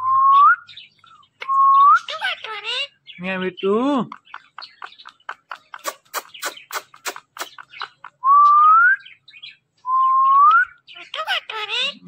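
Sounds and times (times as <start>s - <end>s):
parakeet clicking: 4.0s - 8.0s.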